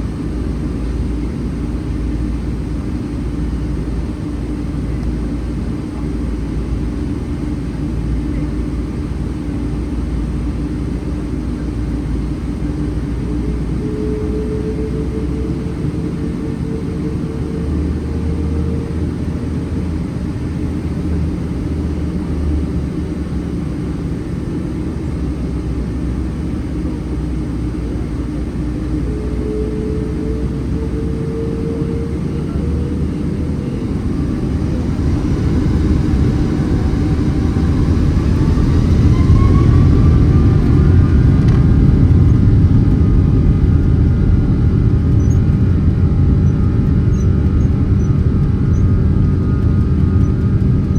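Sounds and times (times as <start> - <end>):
airplane cabin low rumble: 0.0 - 50.9
jet engine whine: 0.0 - 50.9.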